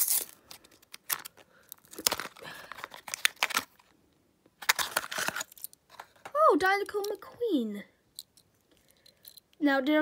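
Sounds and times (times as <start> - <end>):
packaging torn and crinkled: 0.0 - 3.9, 4.6 - 5.7.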